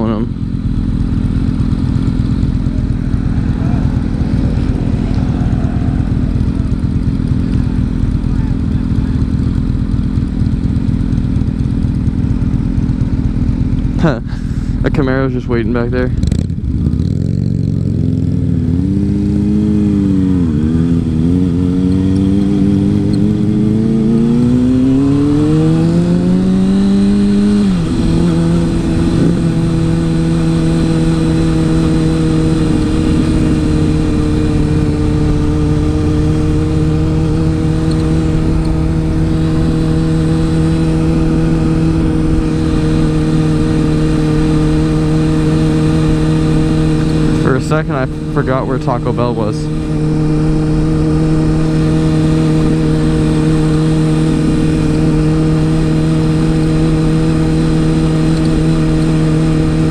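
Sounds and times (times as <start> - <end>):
motorcycle engine accelerating: 0.0 - 59.9
wind noise: 27.1 - 43.0.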